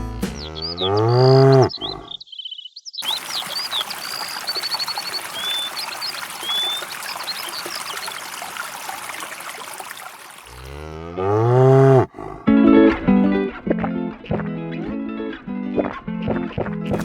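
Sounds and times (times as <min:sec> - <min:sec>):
birds chirping: 0:00.0 - 0:12.4
cow mooing: 0:00.4 - 0:02.1, 0:10.5 - 0:12.5.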